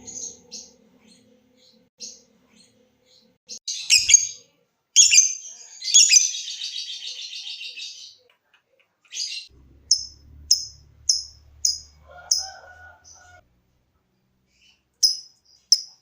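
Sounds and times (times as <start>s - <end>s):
lovebird sharp chirps: 3.7s - 4.4s, 5.0s - 6.7s, 9.4s - 12.0s.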